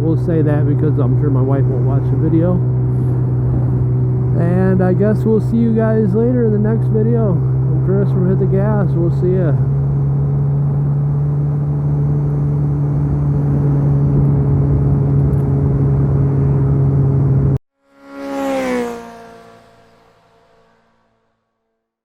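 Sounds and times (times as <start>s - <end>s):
motorcycle engine droning: 0.0s - 21.8s
wind rush: 2.5s - 5.1s, 9.6s - 17.6s.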